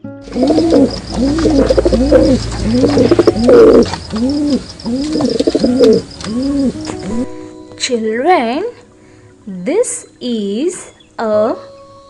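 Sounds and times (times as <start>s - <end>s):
pigeon cooing: 0.3s - 7.4s.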